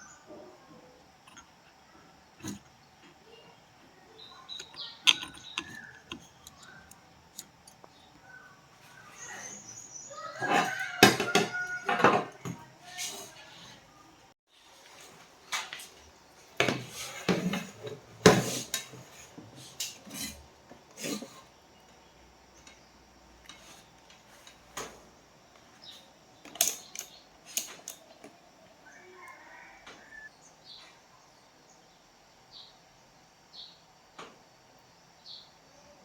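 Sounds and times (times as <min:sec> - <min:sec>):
metal tools clinking and knocking: 0:04.5 - 0:08.0.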